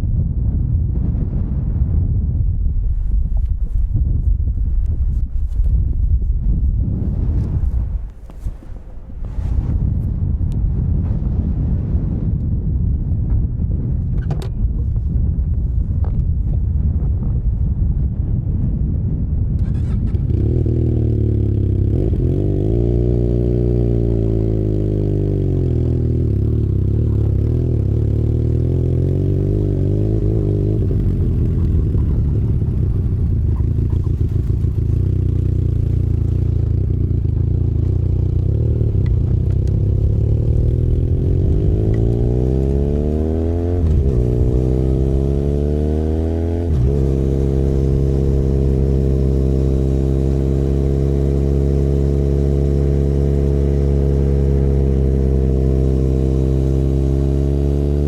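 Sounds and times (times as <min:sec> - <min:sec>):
motorcycle engine revving: 0:19.6 - 0:58.0.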